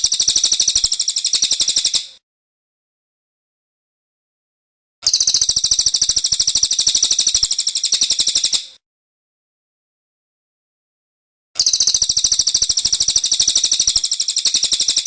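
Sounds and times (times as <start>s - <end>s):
songbird chattering trill: 0.0s - 2.2s, 5.0s - 8.7s, 11.6s - 15.0s.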